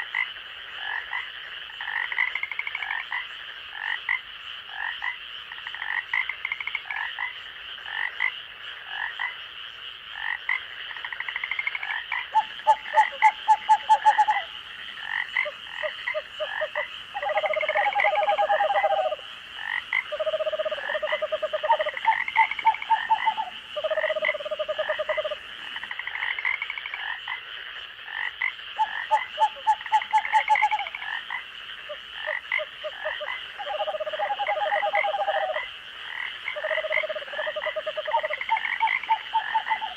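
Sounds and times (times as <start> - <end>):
frogs calling: 0.0 - 39.9
rapid pulsed croaking: 11.3 - 27.4.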